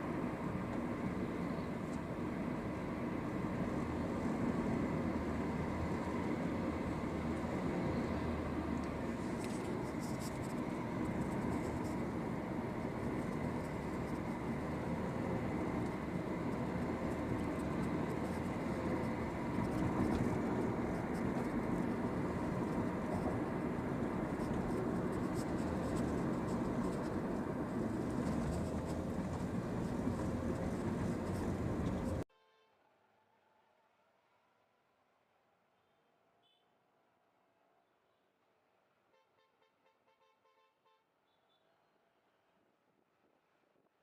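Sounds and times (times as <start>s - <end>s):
car engine running: 8.8s - 32.2s.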